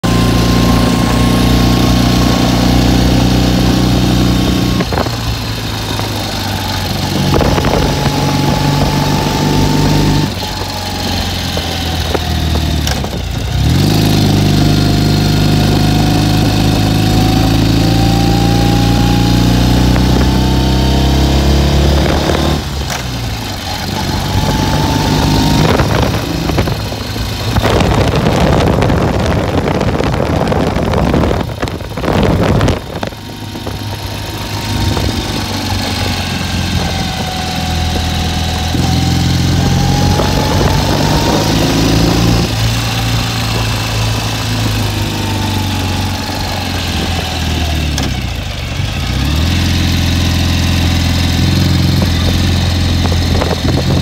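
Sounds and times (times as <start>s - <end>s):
motorcycle engine running: 0.0s - 54.0s
wind on microphone: 0.1s - 22.9s, 23.9s - 48.0s, 50.8s - 54.0s.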